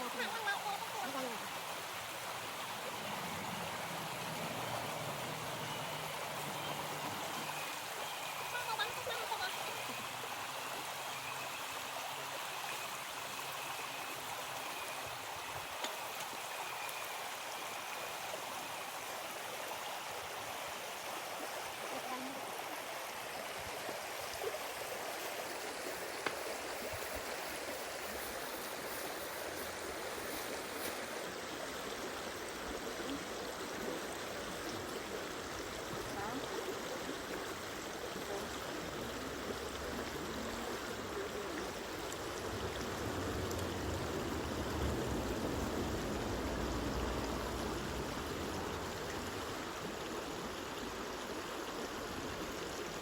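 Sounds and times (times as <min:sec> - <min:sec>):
flowing water: 0:00.0 - 0:53.0
low rumble: 0:42.1 - 0:49.4.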